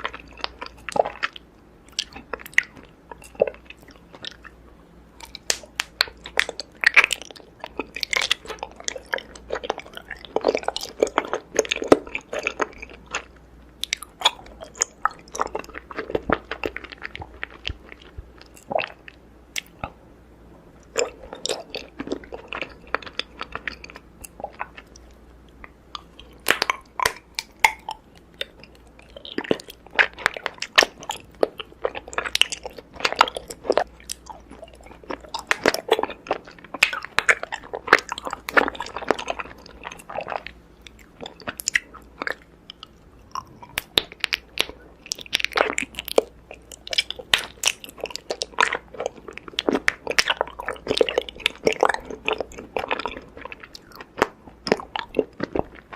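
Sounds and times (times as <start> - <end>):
honeycomb being chewed: 0.0 - 20.0, 20.7 - 55.9.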